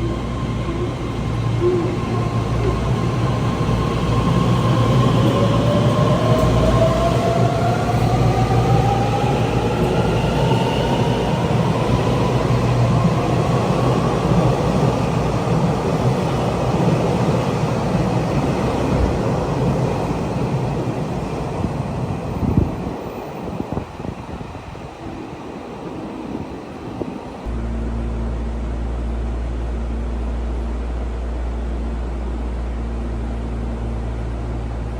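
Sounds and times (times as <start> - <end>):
train wheels on rail: 0.0 - 27.6.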